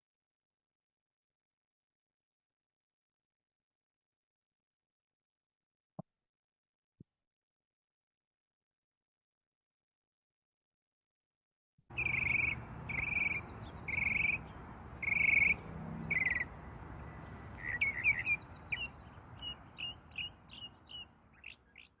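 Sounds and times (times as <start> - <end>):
bird chirps: 11.9 - 22.0
bird raspy trilled calls: 11.9 - 22.0.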